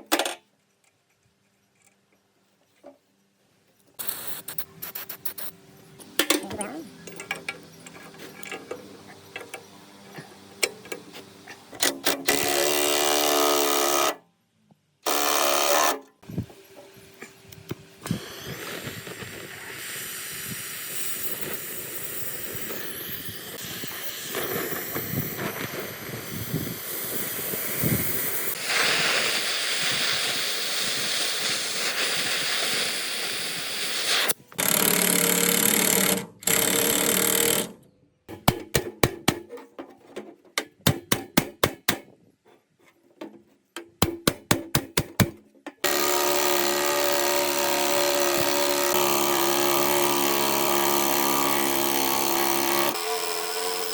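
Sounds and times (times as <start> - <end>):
motor-driven tool bursts: 15.0 - 16.0, 18.0 - 37.8, 45.8 - 53.9.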